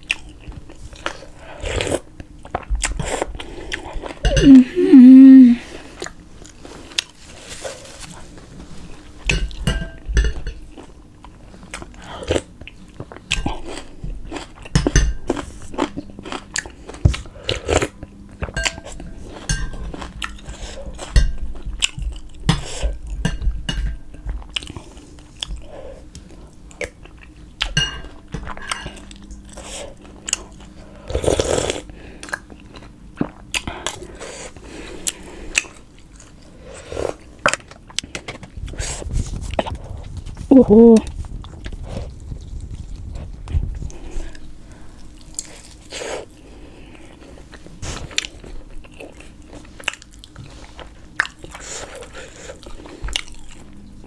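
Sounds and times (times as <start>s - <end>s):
dishes and cutlery clinking: 4.2s - 4.6s, 9.2s - 10.8s, 14.7s - 15.4s, 18.4s - 21.5s, 22.5s - 24.4s, 27.7s - 29.2s.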